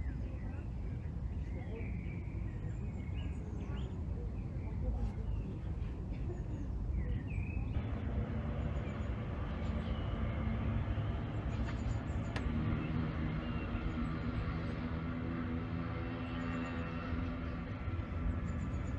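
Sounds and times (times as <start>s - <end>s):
low outdoor rumble: 0.0s - 18.9s.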